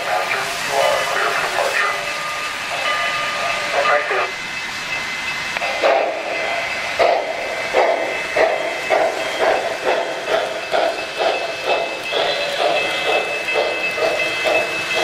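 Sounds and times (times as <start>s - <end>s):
steady steam hiss: 0.0s - 15.0s
steam locomotive chuffing: 0.0s - 15.0s.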